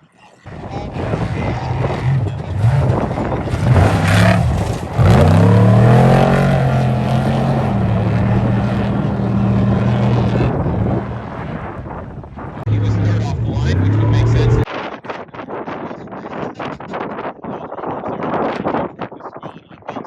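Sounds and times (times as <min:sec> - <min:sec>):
vehicle engine revving: 0:00.5 - 0:14.7.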